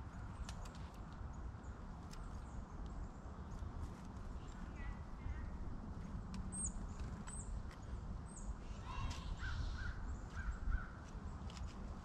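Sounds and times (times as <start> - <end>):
small birds calling: 6.5 - 11.7.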